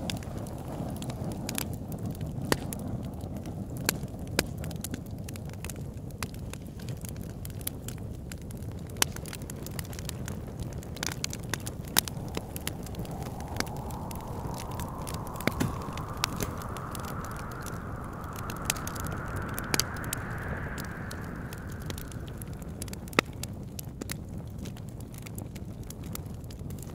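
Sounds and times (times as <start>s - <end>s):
wind whistling: 11.0s - 23.8s
wood fire crackling and popping: 11.0s - 24.1s
low steady rumble: 11.8s - 23.4s.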